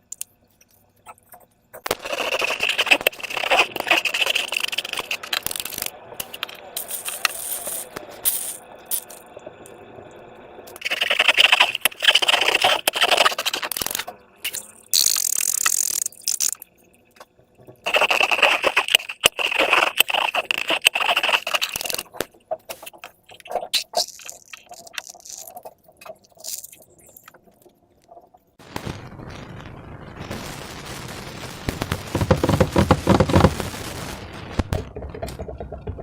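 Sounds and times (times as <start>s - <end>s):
slime scraping and rustling: 1.9s - 8.6s, 10.8s - 14.0s, 17.9s - 27.2s, 32.1s - 33.7s.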